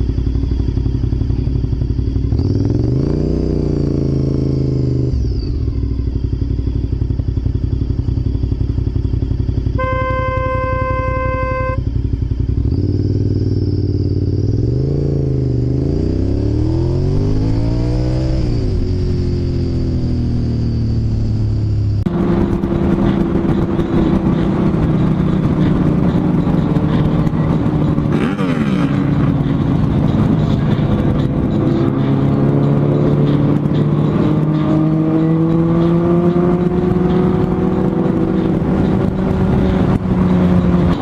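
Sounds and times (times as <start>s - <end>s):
vehicle engine running: 0.0s - 41.0s.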